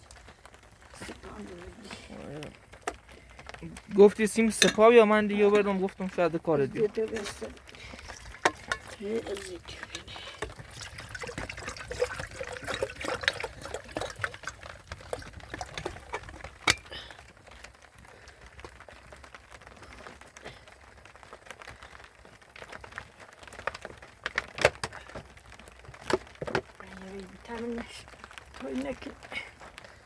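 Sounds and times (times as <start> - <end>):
water pouring and trickling: 0.0 - 30.0
small clicks and knocks: 2.5 - 5.8, 21.0 - 27.3.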